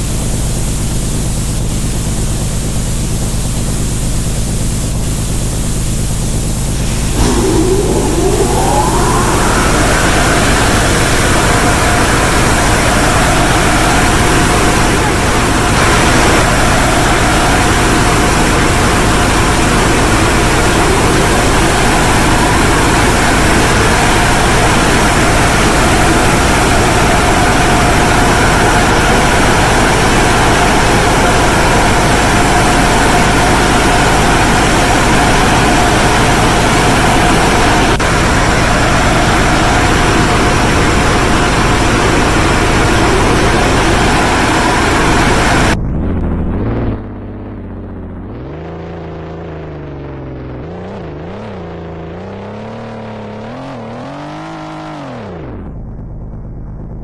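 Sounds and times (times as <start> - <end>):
faint steady hum: 0.0 - 47.1
car wash equipment rushing: 6.9 - 45.8.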